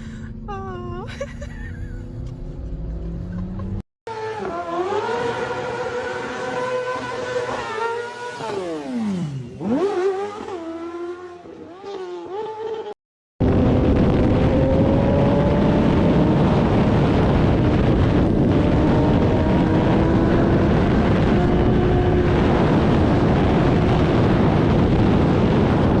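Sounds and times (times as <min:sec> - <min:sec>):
wind noise on microphone: 0:13.4 - 0:26.0.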